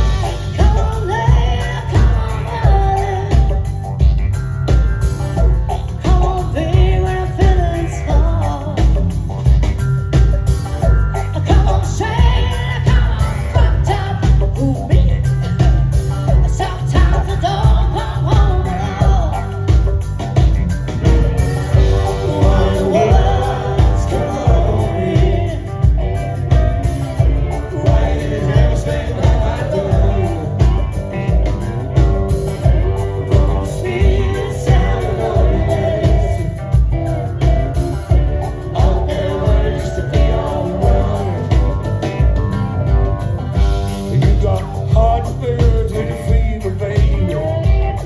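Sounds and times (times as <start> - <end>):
person singing: 0.0 - 4.0, 5.8 - 9.2, 21.4 - 42.4
heavy bass: 0.0 - 48.0
live rock band playing: 0.0 - 48.0
steady drum beat: 0.0 - 48.0.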